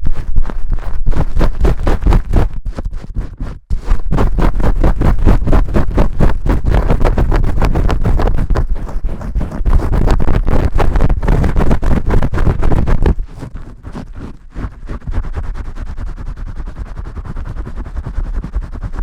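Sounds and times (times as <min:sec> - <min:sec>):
fingers scrubbing lather: 0:04.0 - 0:18.9.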